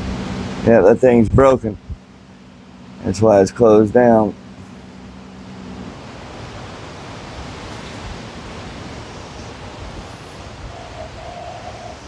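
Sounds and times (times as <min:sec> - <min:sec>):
wind buffeting microphone: 0:00.0 - 0:02.1, 0:05.8 - 0:12.0
steady tone: 0:01.7 - 0:12.0.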